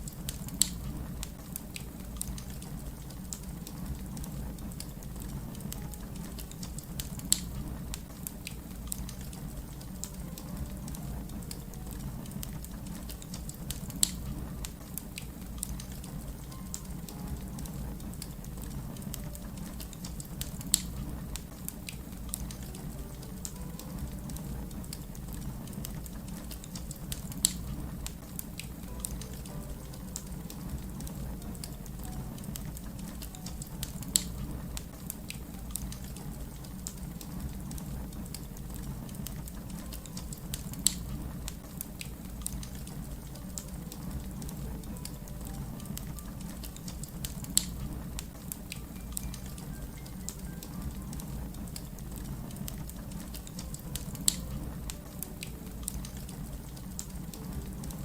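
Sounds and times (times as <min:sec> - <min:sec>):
low rumble of flames: 0:00.0 - 0:58.0
wood fire crackling: 0:00.0 - 0:58.0
loud fire pops: 0:17.8 - 0:23.0, 0:24.4 - 0:28.8.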